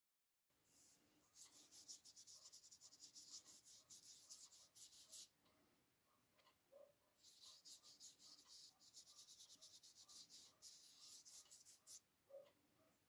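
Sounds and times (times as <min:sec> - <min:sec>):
drawing tool scratching on paper: 0:00.8 - 0:05.3, 0:07.2 - 0:12.0.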